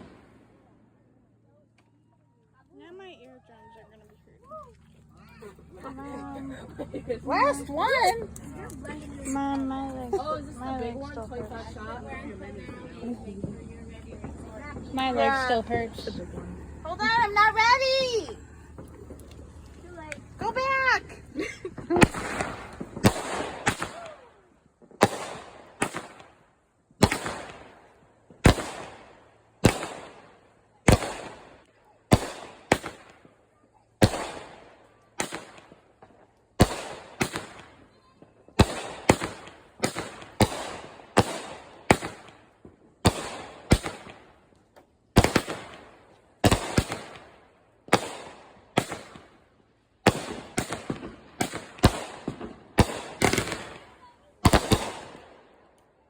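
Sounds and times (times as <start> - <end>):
firework bangs with echo: 21.8 - 24.2, 24.8 - 26.4, 27.0 - 33.4, 34.0 - 44.4, 45.1 - 49.4, 50.0 - 55.5.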